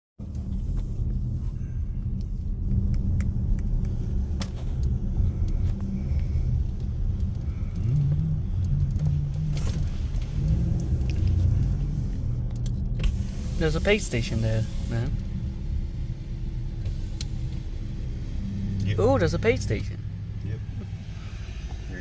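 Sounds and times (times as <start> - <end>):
car engine low rumble: 0.2 - 22.0
light clicks: 2.2 - 13.2.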